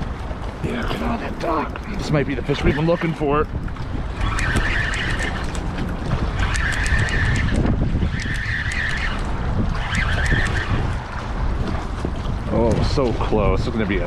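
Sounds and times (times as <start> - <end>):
wind rumbling over microphone: 0.0 - 14.0
high whirring: 3.9 - 11.2.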